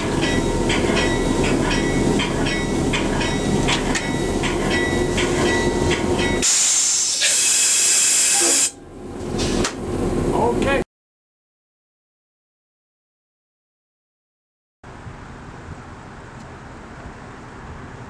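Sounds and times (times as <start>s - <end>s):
train rumbling: 0.0s - 10.8s, 14.9s - 18.0s
loud air hiss: 6.4s - 8.8s.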